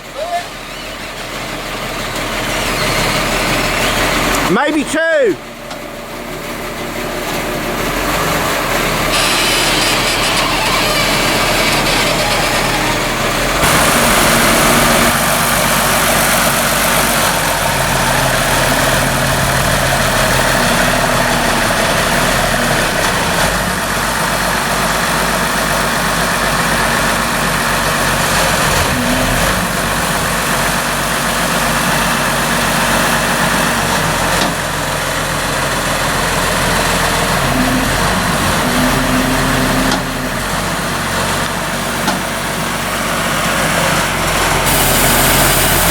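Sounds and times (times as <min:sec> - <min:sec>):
sawmill engine running: 0:00.0 - 0:45.9
saw blade cutting log: 0:09.1 - 0:12.9, 0:13.6 - 0:23.5, 0:44.4 - 0:45.9.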